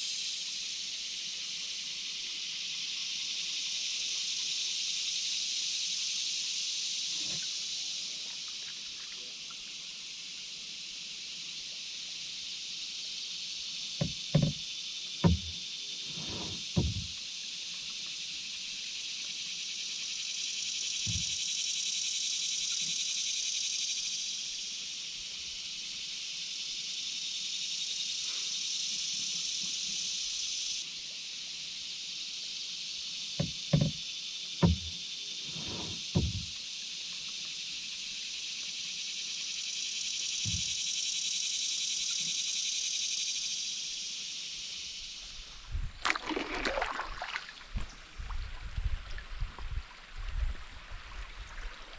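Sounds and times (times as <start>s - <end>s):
high-pitched insect chorus: 0.0s - 51.9s
paddle knocking canoe hull: 14.0s - 14.6s, 15.2s - 17.2s, 33.4s - 34.0s, 34.6s - 36.6s, 46.0s - 47.9s.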